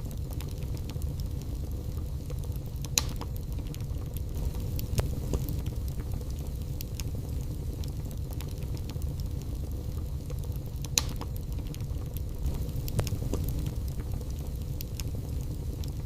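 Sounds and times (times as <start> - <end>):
fire crackling and popping: 0.0 - 16.0
wood fire burning: 0.0 - 16.0.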